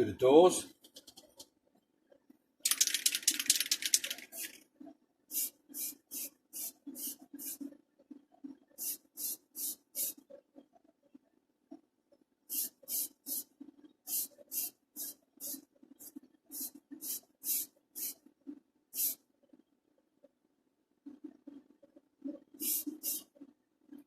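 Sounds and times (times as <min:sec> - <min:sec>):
aerosol paint can spraying: 0:02.7 - 0:04.6, 0:05.3 - 0:07.6, 0:08.8 - 0:10.2, 0:12.5 - 0:13.5, 0:14.1 - 0:18.2, 0:19.0 - 0:19.2, 0:22.6 - 0:23.3.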